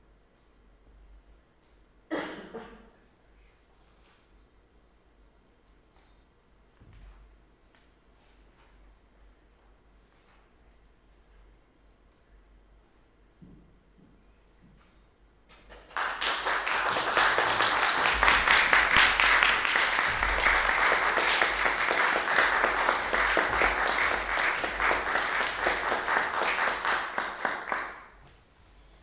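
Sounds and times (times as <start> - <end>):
audience applauding: 15.7 - 28.2.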